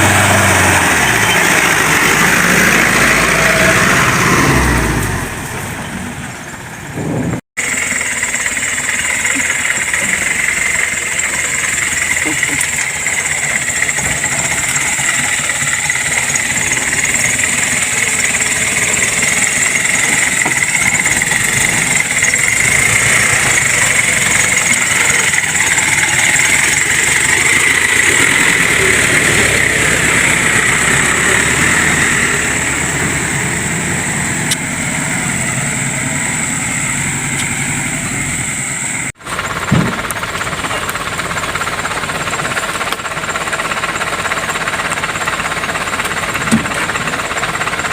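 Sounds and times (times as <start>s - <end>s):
vehicle engine running: 0.0s - 47.9s
short thump: 39.7s - 40.0s.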